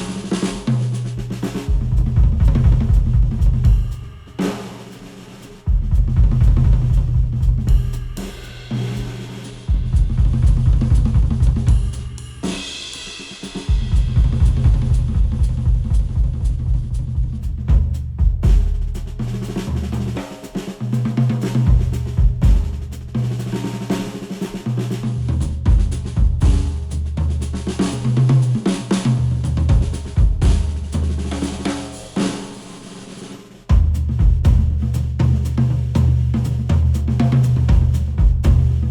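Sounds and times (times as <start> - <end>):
drum kit: 0.0 - 38.9
strong bass line: 1.7 - 3.9
heavy bass line: 1.7 - 4.0, 5.7 - 8.3, 9.7 - 12.1, 13.8 - 19.2.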